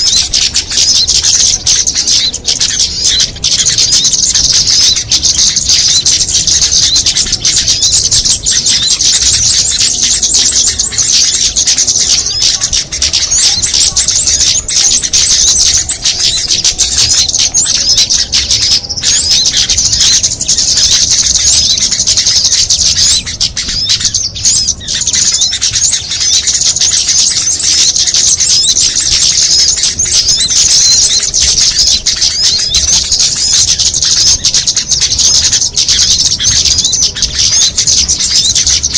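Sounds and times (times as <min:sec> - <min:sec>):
chorus of songbirds chirping: 0:00.0 - 0:38.9.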